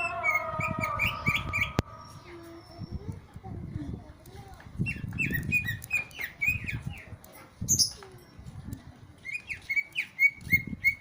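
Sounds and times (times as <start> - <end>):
songbird chirping: 0.0 - 3.6, 4.8 - 8.6, 9.2 - 11.0
low rumbling: 0.0 - 4.1.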